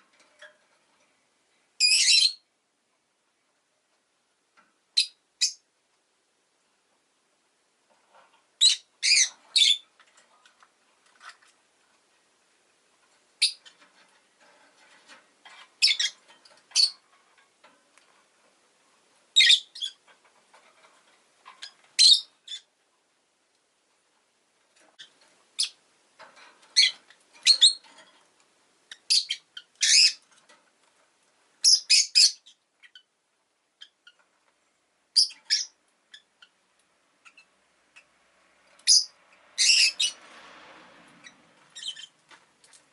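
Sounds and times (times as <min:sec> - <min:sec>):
lovebird shrill chirps: 0:01.8 - 0:02.4, 0:08.6 - 0:09.8, 0:19.4 - 0:20.0, 0:22.0 - 0:22.6, 0:29.0 - 0:30.2, 0:31.6 - 0:33.0, 0:38.8 - 0:40.2.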